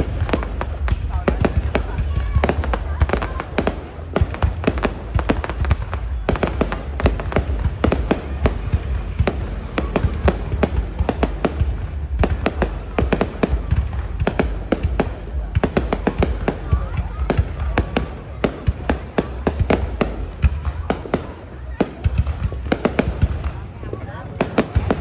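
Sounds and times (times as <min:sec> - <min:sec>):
low rumble: 0:00.0 - 0:18.8
fireworks bangs and cracks: 0:00.0 - 0:25.0.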